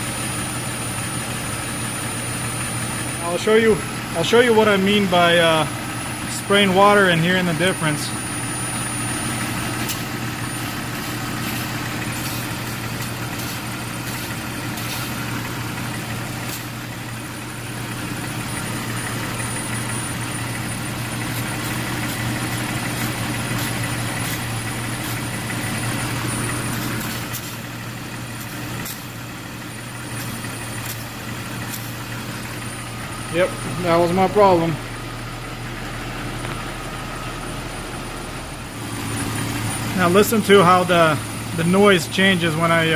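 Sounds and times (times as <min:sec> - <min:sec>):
car engine idling: 0:00.0 - 0:42.9
water spray squirts: 0:09.8 - 0:16.8, 0:21.2 - 0:27.6.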